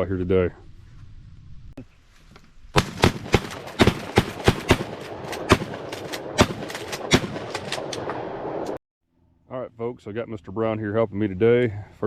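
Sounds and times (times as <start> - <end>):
shotguns firing: 2.7 - 8.6.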